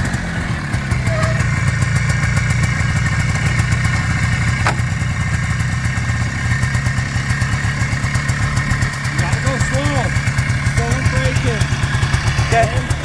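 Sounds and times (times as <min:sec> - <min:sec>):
two-stroke engine running: 0:00.0 - 0:13.0.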